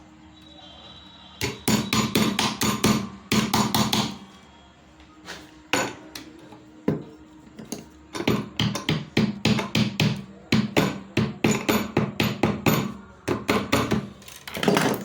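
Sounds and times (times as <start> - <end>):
hammer striking metal: 1.4 - 4.2, 8.2 - 15.0.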